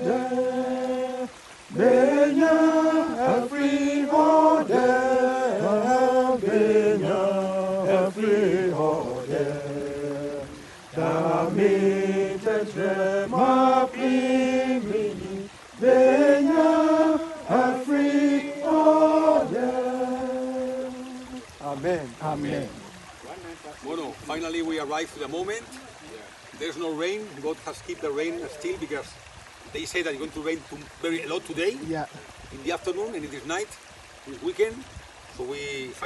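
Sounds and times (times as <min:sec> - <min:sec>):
voices singing a worship song: 0:00.0 - 0:22.9.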